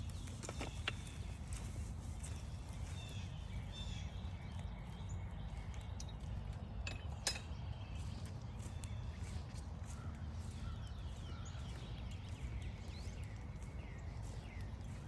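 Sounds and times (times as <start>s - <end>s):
songbird chirps: 0.0s - 15.0s.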